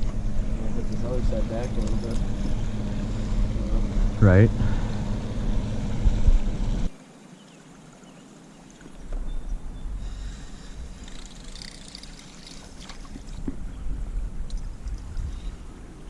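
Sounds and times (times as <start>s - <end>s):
boat motor running: 0.0s - 6.9s
low rumble of water and wind: 0.0s - 16.0s.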